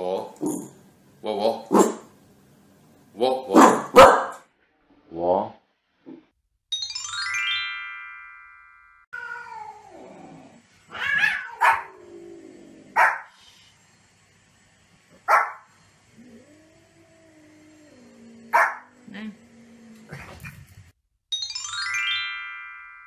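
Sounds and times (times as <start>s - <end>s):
dog barking sharply: 1.7s - 2.1s, 3.5s - 4.4s, 15.3s - 15.6s
falling electronic chime tones: 6.7s - 9.0s, 21.3s - 23.0s
cat meowing: 9.2s - 10.2s, 10.9s - 12.0s.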